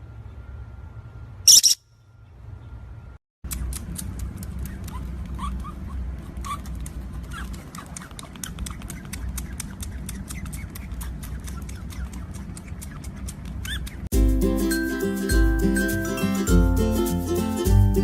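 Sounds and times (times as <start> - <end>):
chirping animal calls: 1.5 - 1.8
rapid irregular clicks: 6.6 - 14.1.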